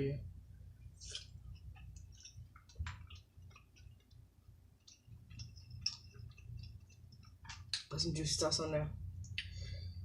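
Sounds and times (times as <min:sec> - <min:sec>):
person eating with wet squishes: 0:01.0 - 0:07.8
chewing and lip smacks: 0:01.0 - 0:07.9.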